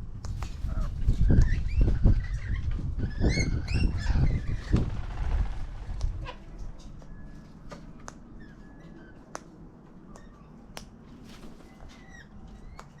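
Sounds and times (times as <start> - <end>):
low wind rumble: 0.0 - 13.0.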